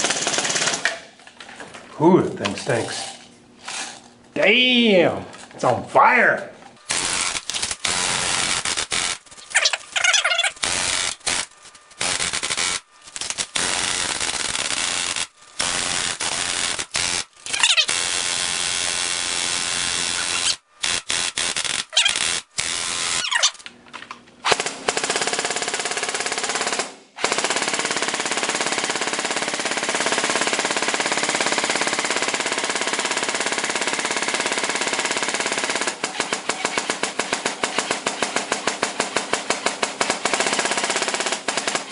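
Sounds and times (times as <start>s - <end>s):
airsoft gun firing full auto: 0.0s - 1.0s, 10.4s - 19.1s, 24.4s - 41.9s.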